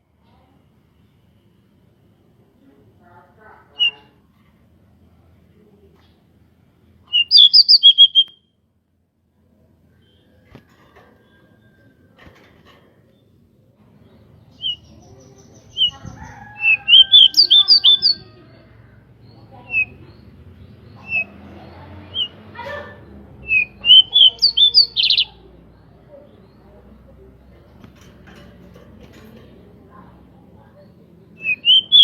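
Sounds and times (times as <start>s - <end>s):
bird chirping: 7.1s - 8.4s, 13.1s - 18.4s, 19.2s - 28.5s, 30.7s - 32.0s.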